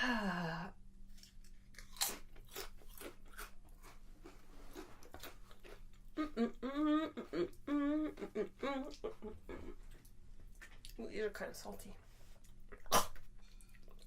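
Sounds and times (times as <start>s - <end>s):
potato chips crunching: 1.1s - 6.1s.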